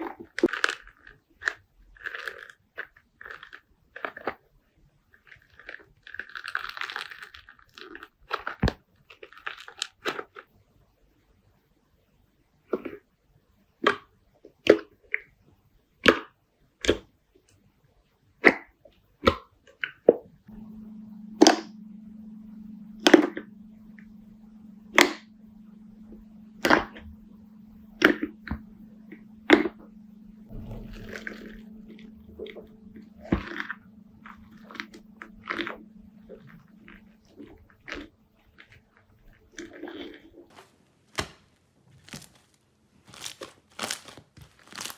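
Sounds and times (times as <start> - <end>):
steady low hum: 20.4 - 40.5.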